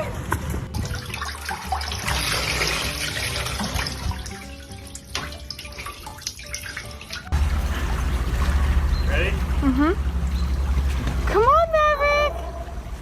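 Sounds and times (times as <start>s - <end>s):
water running: 0.6s - 13.0s
small splashes: 0.7s - 11.6s.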